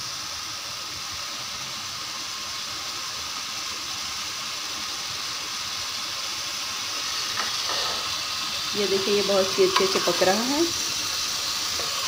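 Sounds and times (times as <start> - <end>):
chicken sizzling in a pot: 0.0 - 12.0.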